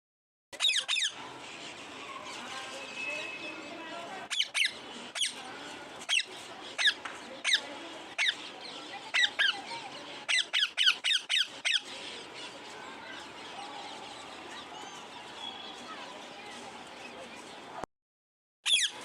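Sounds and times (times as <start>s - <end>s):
parrot squawking: 0.6s - 1.2s, 4.3s - 5.4s, 10.3s - 11.9s, 18.7s - 19.0s.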